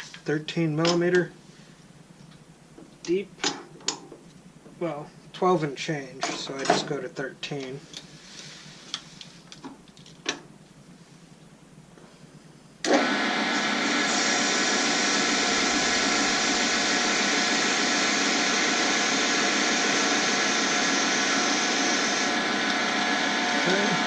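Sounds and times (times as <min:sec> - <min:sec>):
metal lathe running: 0:12.9 - 0:24.0.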